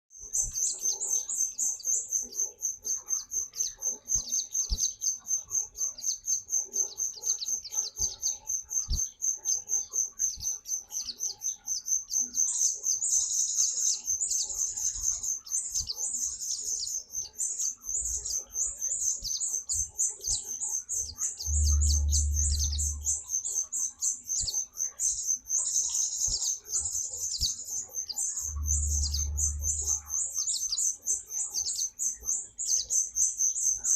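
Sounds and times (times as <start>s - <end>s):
bird chirping rapidly: 13.0s - 32.1s
bird warbling: 19.9s - 23.4s, 28.0s - 30.3s
low rumbles: 21.5s - 23.2s, 28.4s - 30.1s.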